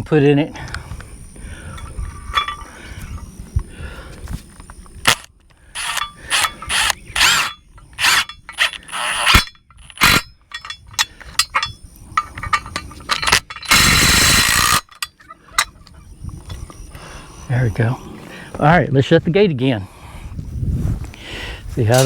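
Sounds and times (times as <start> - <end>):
socket tool tightening bolt: 5.1 - 15.8.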